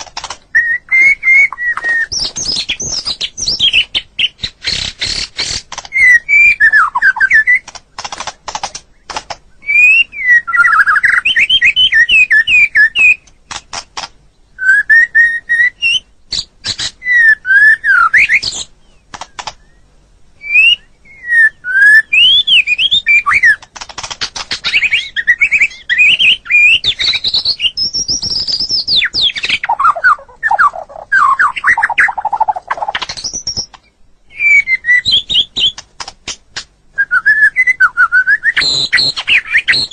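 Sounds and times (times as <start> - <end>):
sharp clicking bird notes: 0.0 - 10.0, 10.6 - 14.3, 18.2 - 19.8, 22.2 - 36.7
bird singing fluty whistles: 0.5 - 5.3, 5.9 - 7.6, 9.6 - 13.3, 14.6 - 18.7, 20.4 - 23.6, 24.6 - 35.8, 36.9 - 39.9.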